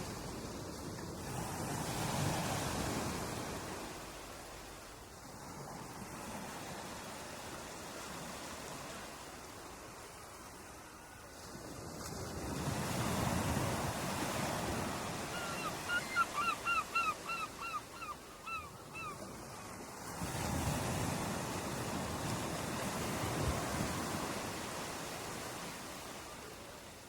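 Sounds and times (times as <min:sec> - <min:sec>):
ocean surf washing ashore: 0:00.0 - 0:27.0
bird calling short pitched calls: 0:15.3 - 0:19.2.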